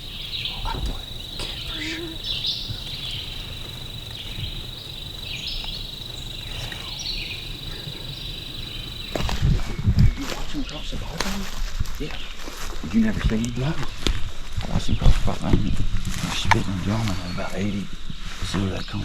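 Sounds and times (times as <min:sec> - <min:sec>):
short songbird calls: 0:00.0 - 0:10.2
high insect trill: 0:00.0 - 0:13.7.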